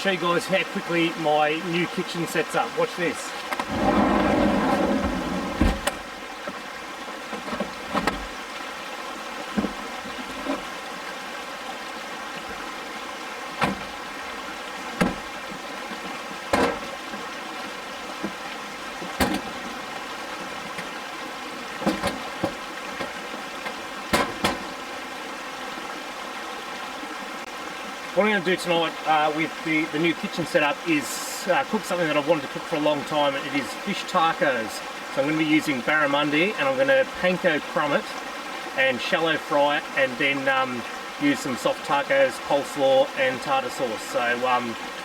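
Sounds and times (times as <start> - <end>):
sharp clicks and knocks: 3.5 - 6.6, 7.3 - 8.3, 15.9 - 17.0, 19.0 - 19.7, 21.8 - 24.8.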